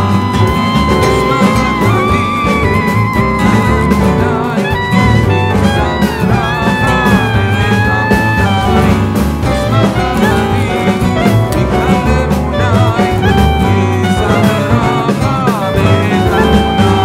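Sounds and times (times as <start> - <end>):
instrumental music with beat: 0.0 - 17.0.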